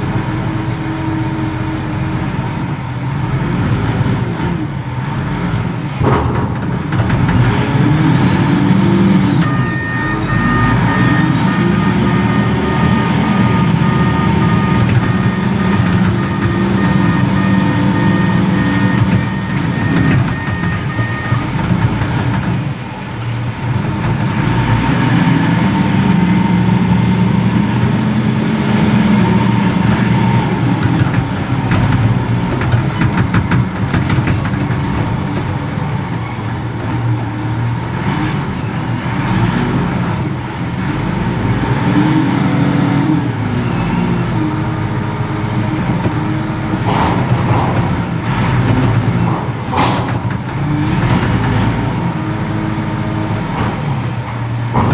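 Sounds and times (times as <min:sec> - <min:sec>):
diesel engine running hard: 0:00.0 - 0:54.9.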